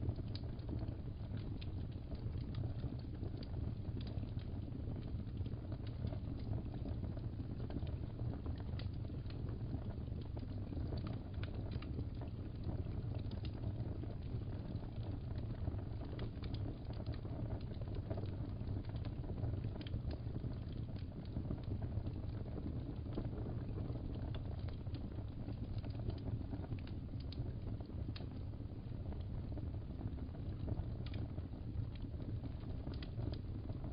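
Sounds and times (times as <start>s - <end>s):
fireplace crackling: 0.0s - 33.9s.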